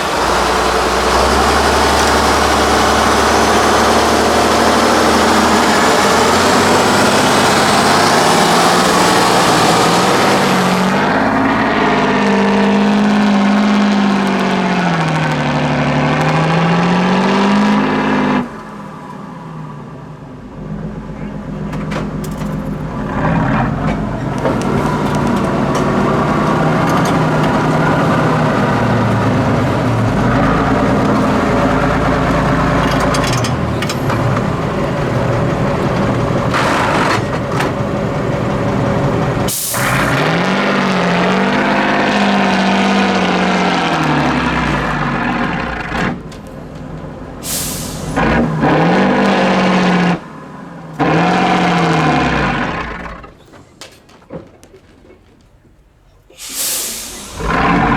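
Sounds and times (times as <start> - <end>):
truck diesel engine revving: 0.0 - 19.1, 20.5 - 53.5, 56.2 - 57.9
air brake hisses: 39.5 - 40.1, 47.4 - 48.3, 56.3 - 57.5.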